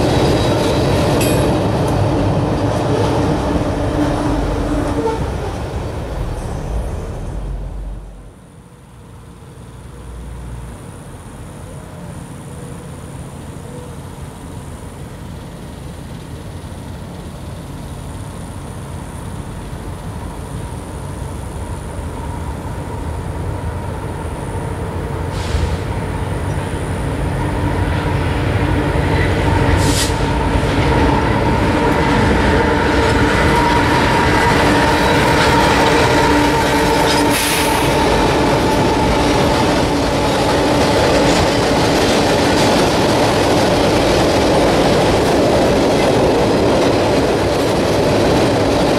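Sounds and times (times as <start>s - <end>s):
train cars clattering on bridge: 0.0s - 8.0s, 25.3s - 48.9s
freight train rumbling: 0.0s - 48.9s
train wheels squealing: 24.0s - 41.4s.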